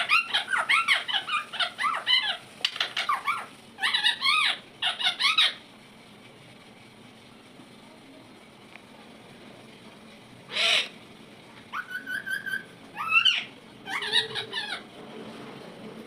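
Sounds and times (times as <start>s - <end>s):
parrot calling: 0.0s - 5.6s, 10.5s - 11.0s, 11.7s - 14.9s.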